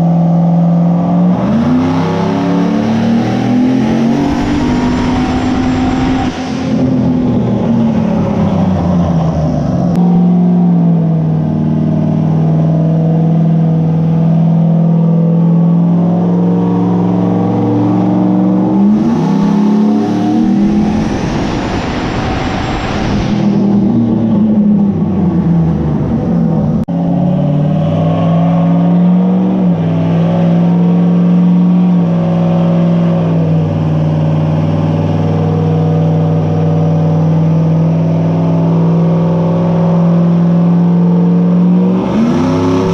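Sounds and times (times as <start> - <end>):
vehicle engine running: 3.3 - 10.0.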